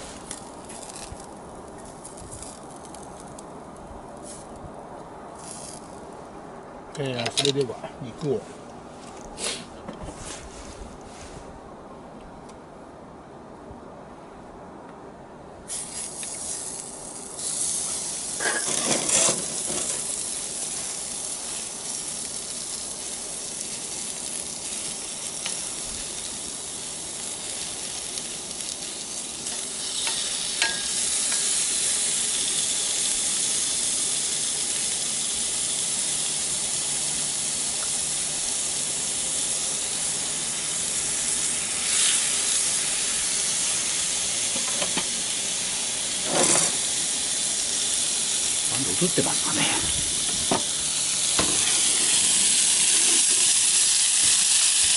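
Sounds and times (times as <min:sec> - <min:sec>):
meat sizzling in a skillet: 0:15.7 - 0:54.9.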